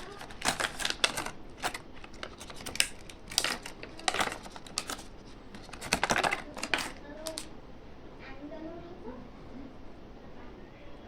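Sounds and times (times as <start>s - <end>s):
plastic wrappers crinkling: 0.0s - 7.5s.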